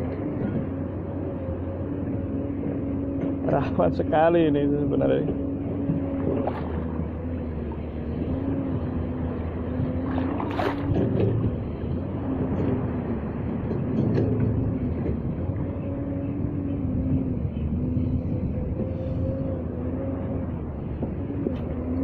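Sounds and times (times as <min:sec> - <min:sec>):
low hum: 0:00.0 - 0:22.0
wind on microphone: 0:00.0 - 0:22.0
waves breaking on shore: 0:00.6 - 0:17.4
sharp water splash: 0:10.0 - 0:11.0.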